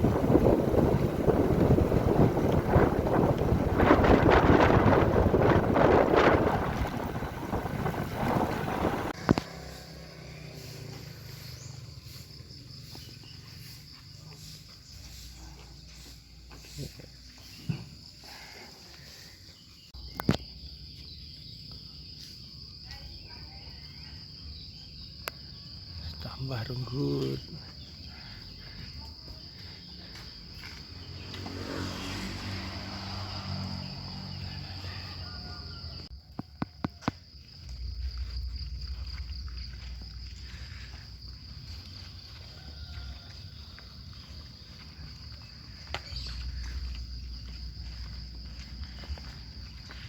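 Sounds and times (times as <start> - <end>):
low rumble: 0.0 - 9.4, 37.1 - 42.5, 44.1 - 50.0
insects droning: 0.0 - 50.0.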